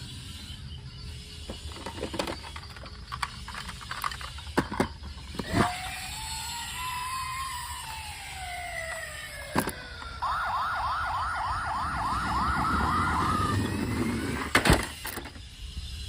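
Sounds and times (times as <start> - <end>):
toy siren yelping wail: 5.4 - 14.5
falling tone: 6.4 - 14.6.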